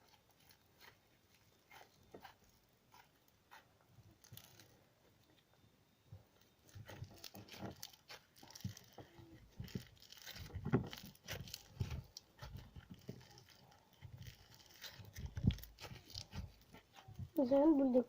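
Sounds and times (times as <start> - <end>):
slime squishing and popping: 6.6 - 17.3.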